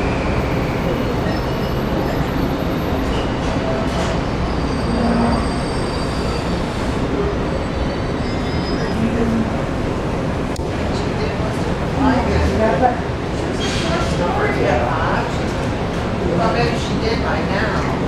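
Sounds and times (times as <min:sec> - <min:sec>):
train rumbling on tracks: 0:00.0 - 0:18.0
high-pitched wheel squeal: 0:04.4 - 0:09.2.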